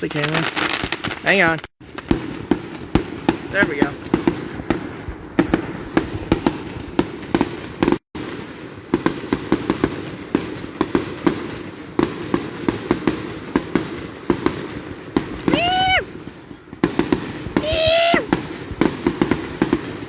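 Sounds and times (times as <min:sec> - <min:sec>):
firework bangs and pops: 0:00.0 - 0:20.0.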